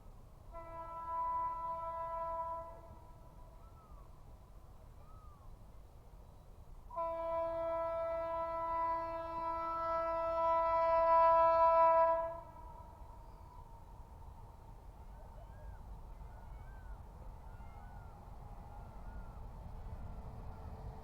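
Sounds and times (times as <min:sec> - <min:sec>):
locomotive horn blast: 0:00.5 - 0:03.4, 0:06.9 - 0:13.0.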